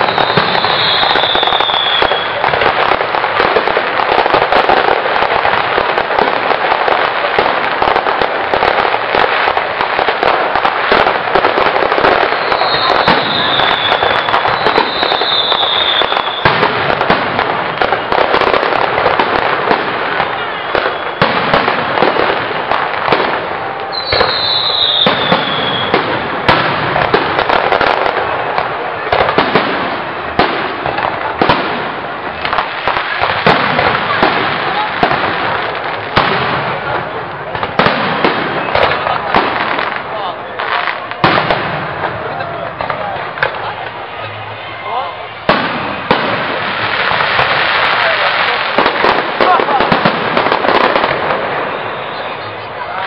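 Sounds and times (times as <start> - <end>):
falling firework whistles: 0.0 - 2.6, 11.9 - 19.5, 20.1 - 28.3, 50.4 - 53.0
fireworks bursting and crackling: 0.0 - 53.0.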